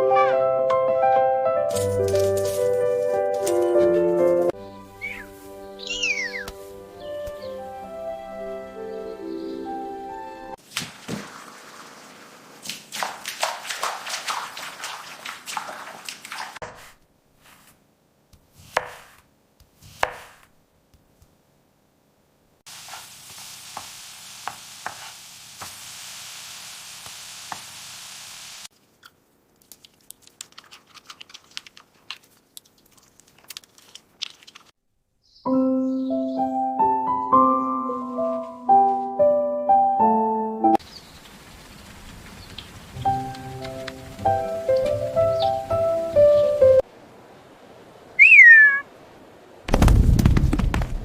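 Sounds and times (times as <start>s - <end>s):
piano-like keyboard music: 0.0s - 10.6s, 35.4s - 40.8s, 43.0s - 46.8s
steady hiss with light ticks: 40.8s - 46.9s.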